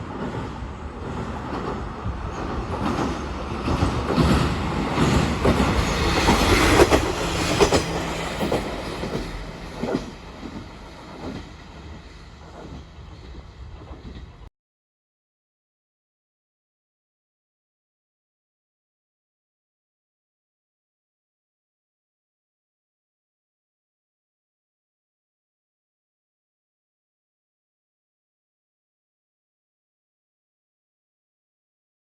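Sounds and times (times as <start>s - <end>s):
diesel railcar passing: 0.0s - 14.5s
wheels clacking over rail joints: 0.0s - 14.5s.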